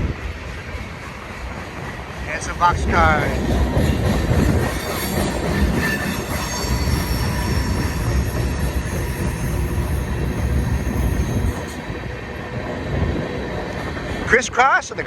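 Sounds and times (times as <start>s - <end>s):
steel wheels rumbling on rail: 0.0s - 15.0s
high-pitched wheel flange squeal: 3.8s - 12.3s.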